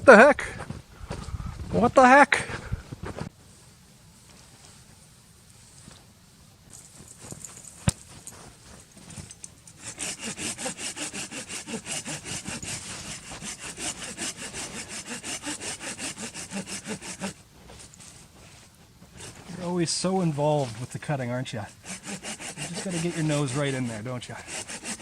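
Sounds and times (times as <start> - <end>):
pruning saw cutting wood: 9.8 - 18.2, 19.1 - 25.0.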